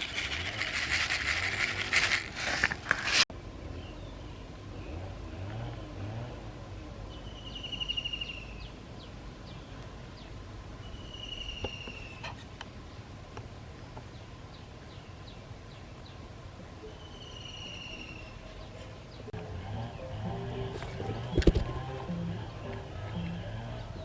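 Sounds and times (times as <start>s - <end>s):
bird chirps: 7.1s - 12.4s, 16.8s - 24.0s.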